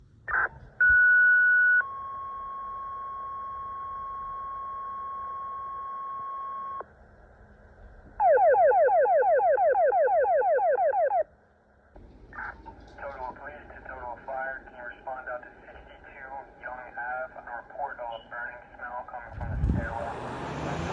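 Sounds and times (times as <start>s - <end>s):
alert warble: 8.2s - 11.2s.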